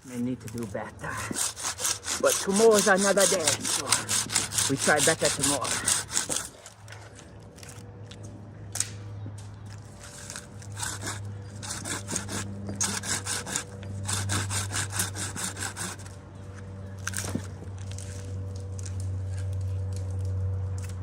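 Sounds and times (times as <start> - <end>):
hand saw cutting wood: 0.4 - 6.9, 10.0 - 16.2.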